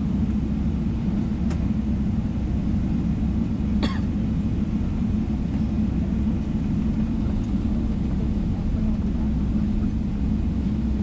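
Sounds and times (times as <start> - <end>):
airliner cabin rumble: 0.0 - 11.0
short cough: 3.8 - 4.2.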